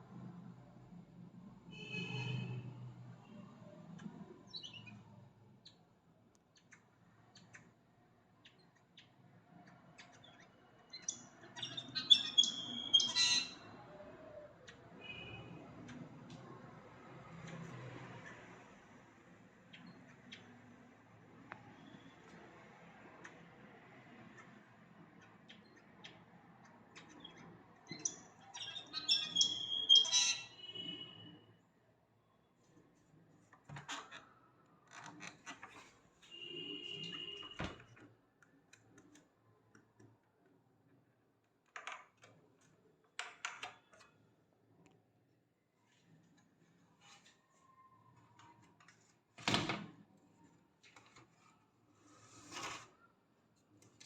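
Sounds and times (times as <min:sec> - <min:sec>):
bird squawking and chirping: 0:11.0 - 0:13.7, 0:27.9 - 0:30.7.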